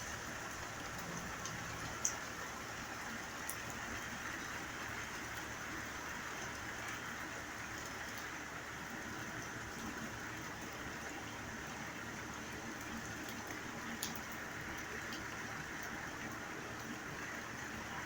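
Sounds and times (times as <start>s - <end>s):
steady rain falling: 0.0s - 18.0s
small tick: 1.4s - 2.2s, 3.4s - 3.7s, 12.8s - 16.0s.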